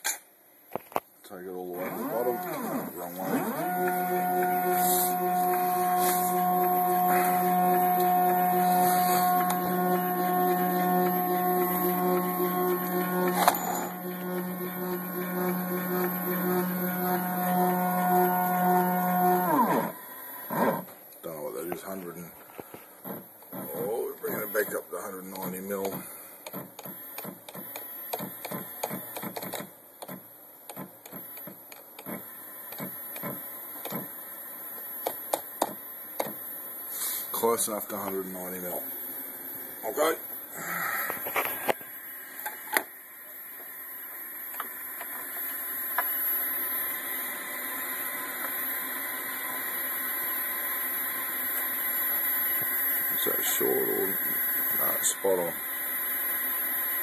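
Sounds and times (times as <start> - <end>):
high motor whine: 1.3 - 57.0
stepper motor humming: 1.4 - 20.9.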